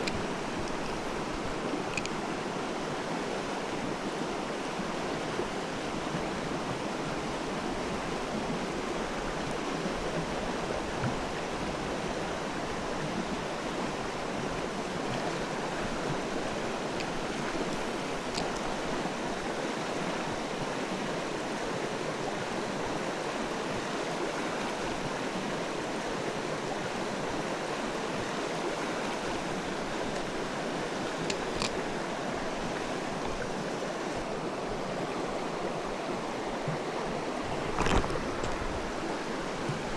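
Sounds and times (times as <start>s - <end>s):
stream water rushing: 0.0s - 39.9s
faint clicks: 1.8s - 2.2s, 17.0s - 18.7s.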